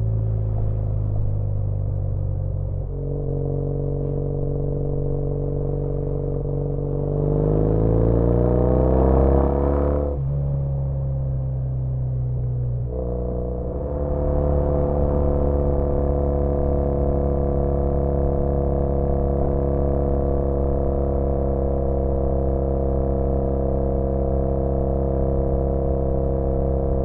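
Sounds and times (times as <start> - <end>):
motorcycle engine revving: 2.9 - 10.2, 12.9 - 22.6.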